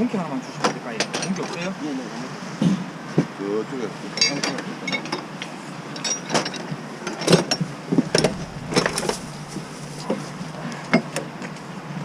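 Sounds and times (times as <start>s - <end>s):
low machine hum: 7.6s - 12.0s.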